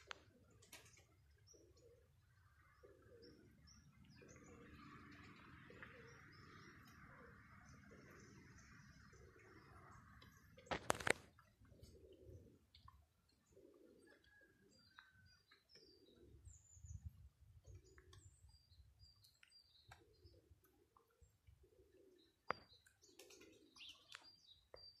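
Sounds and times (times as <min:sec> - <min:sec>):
low bird cooing: 0:00.0 - 0:25.0
small birds chirping: 0:00.0 - 0:25.0.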